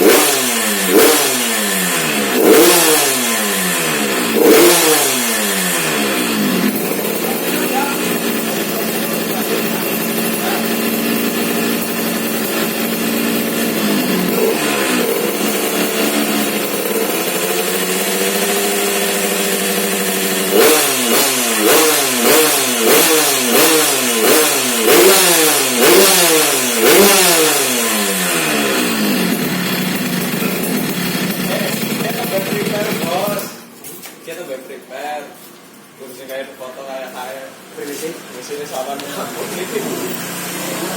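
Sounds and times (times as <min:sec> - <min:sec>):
motorcycle engine idling and revving: 0:00.0 - 0:33.9, 0:38.6 - 0:40.9.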